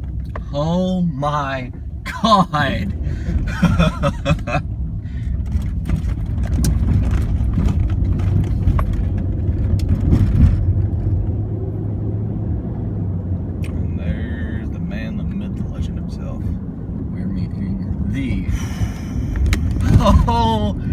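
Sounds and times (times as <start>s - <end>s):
low engine rumble: 0.0s - 20.9s
excited voices: 19.8s - 20.8s.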